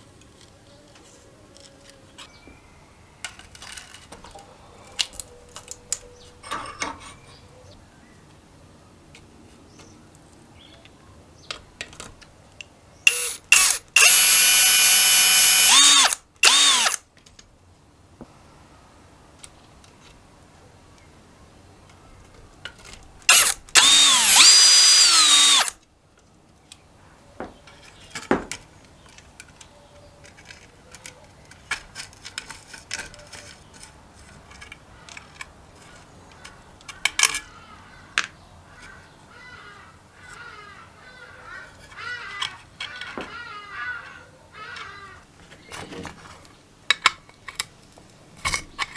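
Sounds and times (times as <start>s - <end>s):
power drill whining: 13.1s - 17.0s, 23.3s - 25.8s.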